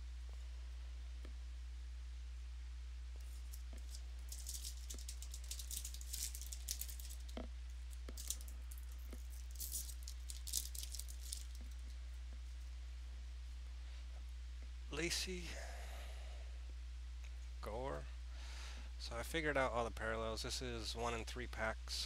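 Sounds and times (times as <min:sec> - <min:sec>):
low electrical hum: 0:00.0 - 0:22.0
cards rustling and clicking: 0:03.2 - 0:07.4, 0:08.0 - 0:11.9.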